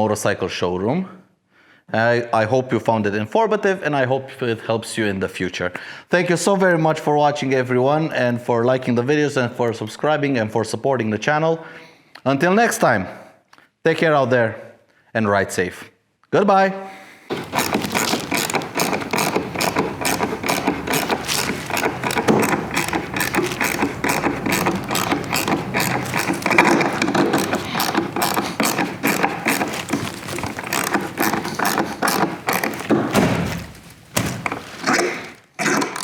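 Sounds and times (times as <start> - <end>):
rapid mechanical clicking: 17.3 - 36.0.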